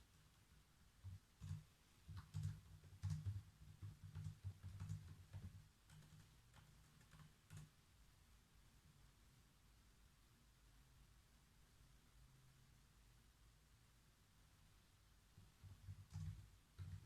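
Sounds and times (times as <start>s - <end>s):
typing on keyboard: 1.0s - 7.7s, 15.4s - 17.0s.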